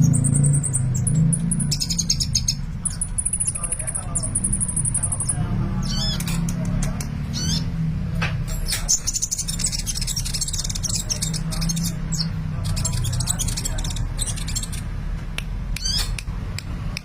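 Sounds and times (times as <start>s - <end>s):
bird chirping and twittering: 0.0s - 16.3s.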